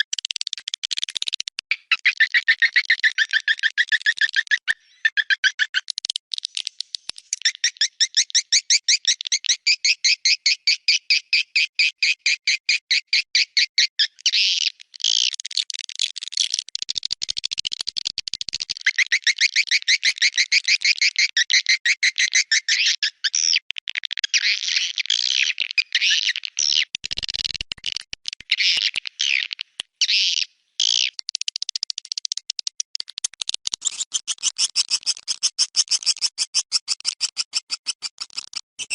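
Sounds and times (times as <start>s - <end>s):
swiftlet chirps and twittering: 7.2s - 12.8s, 33.8s - 38.9s.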